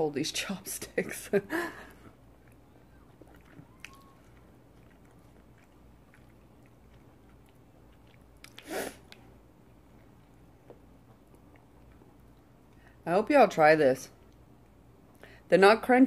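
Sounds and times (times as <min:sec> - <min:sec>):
chewing and mouth clicks: 0:02.0 - 0:13.0, 0:14.2 - 0:15.3.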